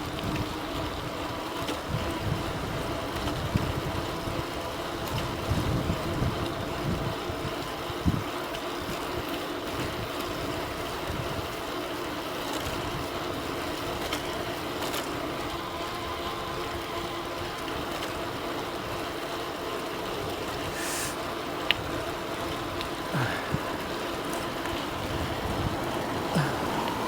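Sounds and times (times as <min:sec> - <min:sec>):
electric bike motor whining: 0:00.0 - 0:27.0
wind buffeting microphone: 0:01.9 - 0:08.3, 0:21.8 - 0:27.0.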